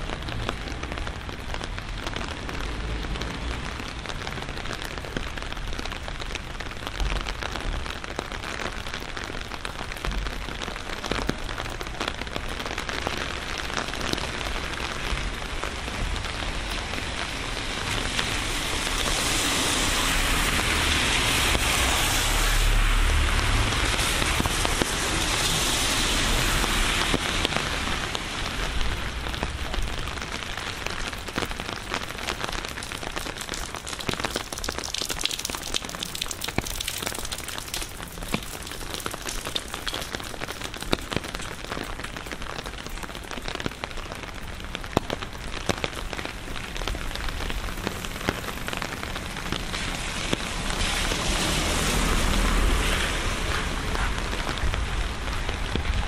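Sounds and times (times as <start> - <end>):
rain falling: 0.0 - 56.0
raindrops clicking: 30.8 - 56.0.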